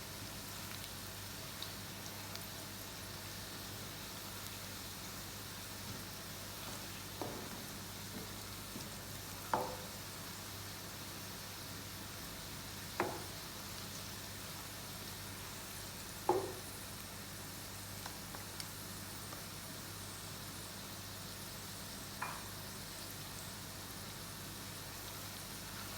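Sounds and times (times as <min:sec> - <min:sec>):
food sizzling in a pan: 0:00.0 - 0:25.9
spoon knocking against pan: 0:09.5 - 0:10.0, 0:13.0 - 0:13.3, 0:16.3 - 0:16.6.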